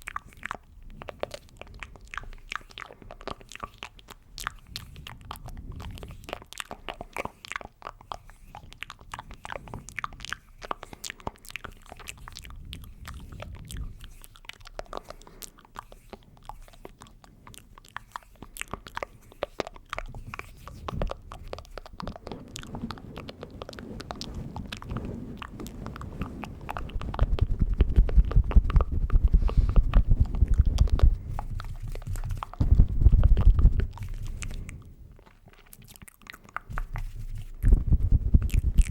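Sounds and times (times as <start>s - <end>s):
wet mouth clicks and smacks: 0.0s - 38.9s
low rumbling: 22.5s - 35.0s, 36.7s - 38.9s.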